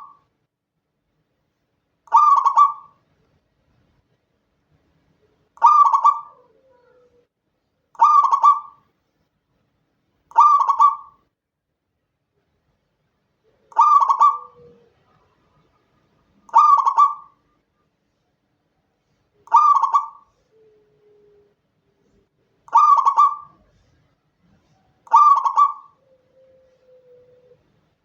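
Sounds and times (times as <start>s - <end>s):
dove cooing: 0.0s - 0.2s, 2.1s - 3.0s, 5.6s - 7.3s, 8.0s - 8.8s, 10.3s - 11.2s, 13.5s - 15.8s, 16.4s - 17.5s, 19.4s - 27.8s.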